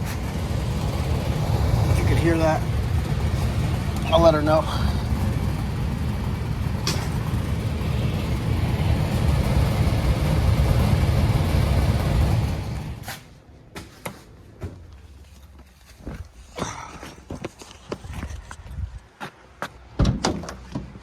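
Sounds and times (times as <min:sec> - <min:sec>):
blower fan motor rumbling and rattling: 0:00.0 - 0:13.1.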